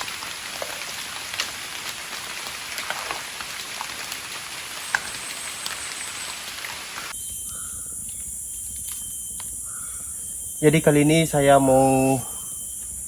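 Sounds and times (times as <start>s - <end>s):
rain pattering: 0.0s - 7.1s
high-pitched hiss: 4.5s - 13.0s.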